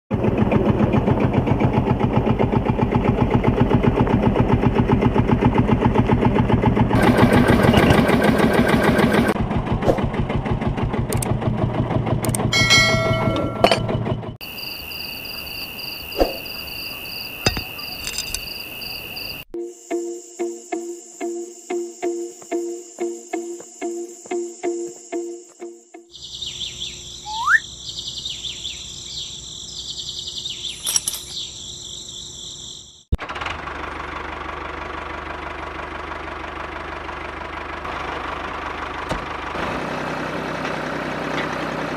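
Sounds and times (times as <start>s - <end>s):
small diesel engine chugging: 0.1s - 15.3s, 26.0s - 30.4s, 31.6s - 41.9s
insects chirping: 14.4s - 33.2s
metallic clinks: 30.7s - 31.5s.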